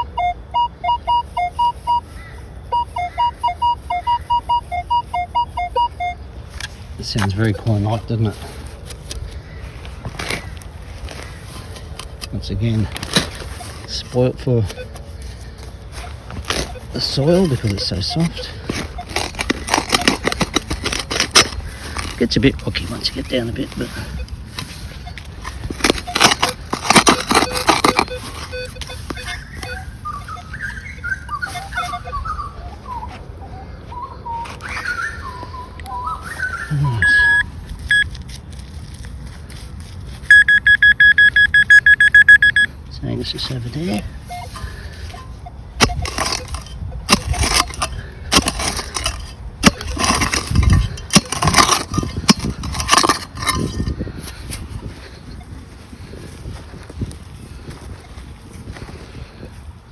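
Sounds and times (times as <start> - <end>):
digging scrapes and knocks: 2.8 - 32.2, 36.8 - 59.5
tool knocking on stones: 17.5 - 22.2, 25.4 - 28.5, 45.8 - 53.9.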